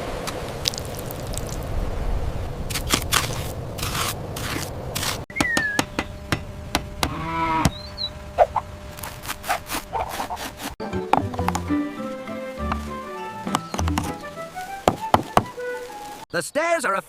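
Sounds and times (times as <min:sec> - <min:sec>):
animal chirps: 0:05.3 - 0:06.1, 0:07.1 - 0:08.6
livestock call: 0:07.0 - 0:08.1
sharp clicks and taps: 0:11.1 - 0:11.7, 0:12.6 - 0:14.2.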